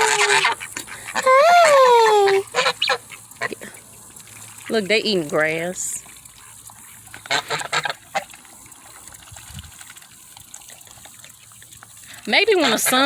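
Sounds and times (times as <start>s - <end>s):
geese and ducks honking: 0.0s - 3.6s, 7.2s - 8.3s, 12.5s - 13.0s.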